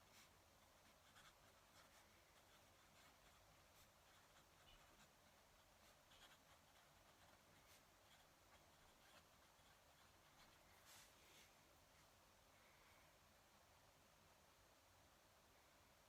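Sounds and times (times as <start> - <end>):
pen nib scratching paper: 0.0 - 11.1.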